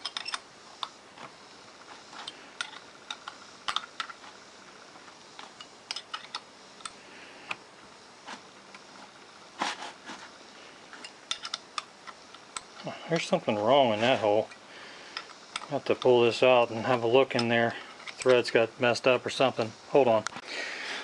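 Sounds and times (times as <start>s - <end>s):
clicks of metal parts and tools: 0.0s - 0.9s, 2.2s - 4.2s, 5.4s - 7.6s, 10.9s - 13.4s, 14.4s - 16.1s, 17.3s - 18.6s.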